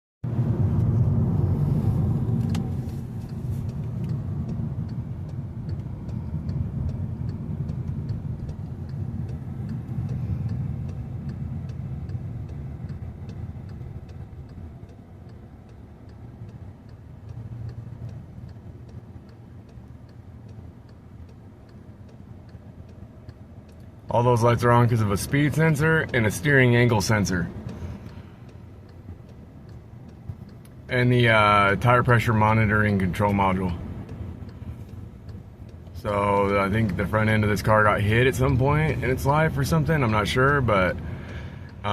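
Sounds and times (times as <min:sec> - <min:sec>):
car engine running: 0:00.2 - 0:41.9
light ticking: 0:00.3 - 0:41.9
sharp click: 0:02.3 - 0:05.0.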